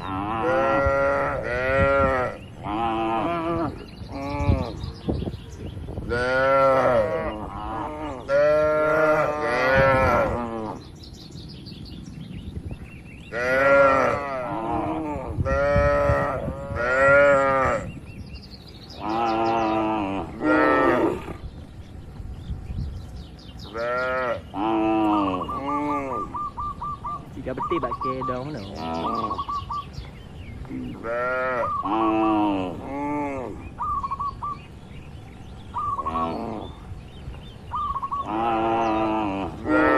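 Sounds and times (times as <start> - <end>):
cattle mooing: 0.0 - 4.8, 6.1 - 10.8, 13.3 - 17.9, 19.0 - 21.4, 23.7 - 26.4, 31.0 - 33.6, 38.2 - 39.9
faint bird chirps: 21.3 - 32.5, 33.3 - 39.4.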